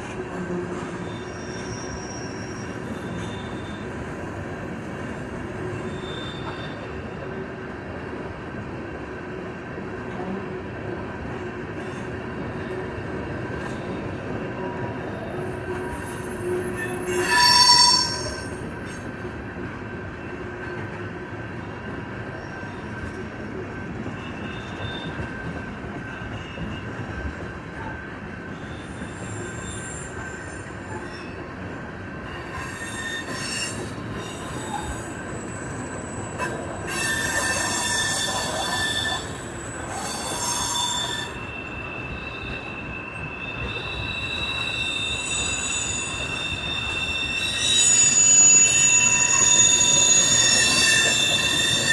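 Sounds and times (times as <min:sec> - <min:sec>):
high-pitched wheel squeal: 0:00.0 - 0:06.9, 0:15.2 - 0:18.7, 0:28.5 - 0:31.4, 0:32.3 - 0:51.9
train wheels rumbling on rail: 0:00.0 - 0:51.9.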